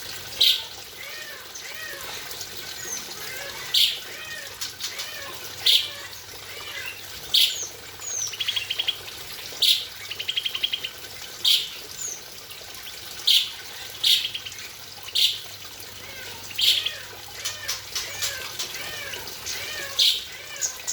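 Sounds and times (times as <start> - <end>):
running water: 0.0 - 20.9
birds calling loudly: 0.3 - 20.9.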